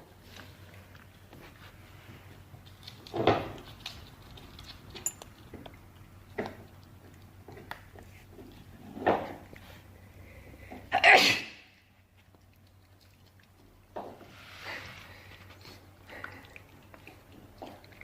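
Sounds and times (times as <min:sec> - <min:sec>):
dog chewing a toy: 0:00.2 - 0:10.8, 0:15.0 - 0:18.0.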